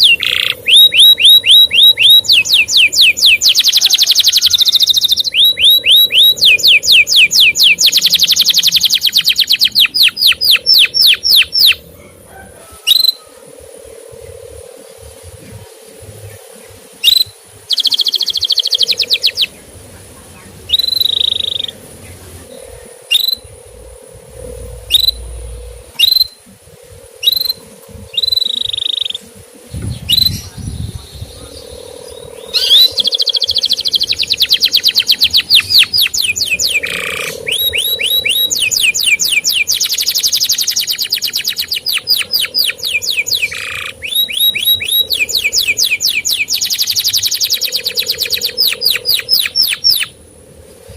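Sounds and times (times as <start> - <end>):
canary chirping and trilling: 0.0 - 11.8, 17.0 - 19.6, 32.5 - 50.1.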